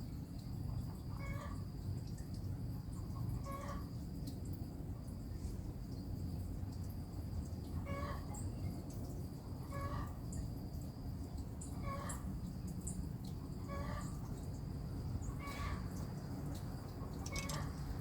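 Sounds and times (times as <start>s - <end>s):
high chirps of small birds: 15.2s - 18.0s.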